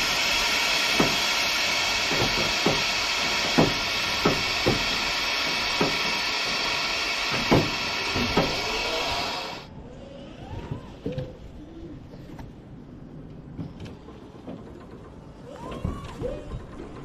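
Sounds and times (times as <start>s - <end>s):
steady loud hiss: 0.0s - 9.7s.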